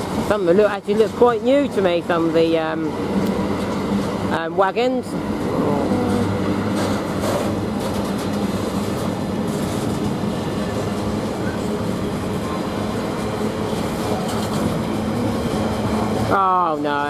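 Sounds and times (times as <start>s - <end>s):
freight train rolling on rails: 0.0s - 17.0s
low hum: 5.1s - 16.8s.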